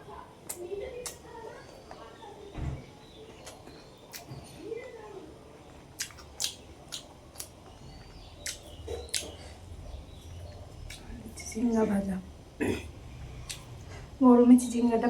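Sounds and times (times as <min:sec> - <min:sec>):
person chewing food: 0:03.3 - 0:04.5, 0:05.6 - 0:11.2, 0:12.6 - 0:13.9.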